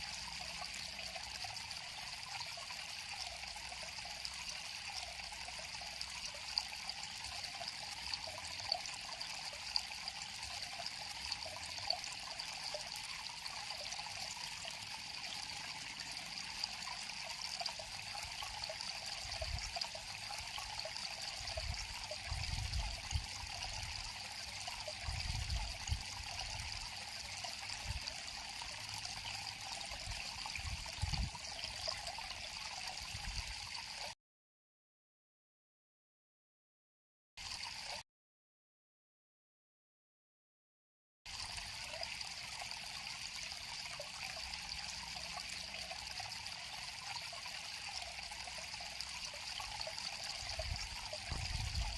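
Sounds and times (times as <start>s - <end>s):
river water flowing: 0.0s - 34.0s, 41.3s - 51.9s.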